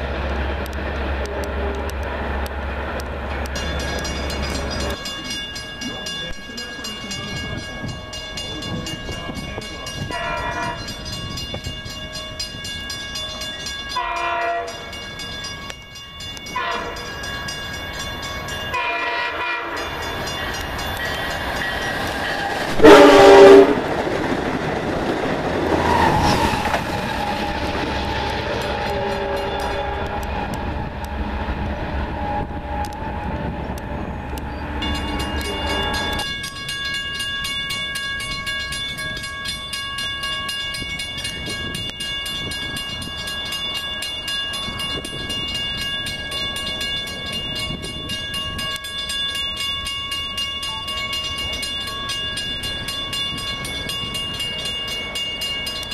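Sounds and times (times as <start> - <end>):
train rumble and clickety-clack: 0.0 - 55.9
train horn blast: 10.1 - 10.9, 14.0 - 14.8, 16.6 - 17.1, 18.8 - 19.9, 22.7 - 23.9, 27.4 - 31.2.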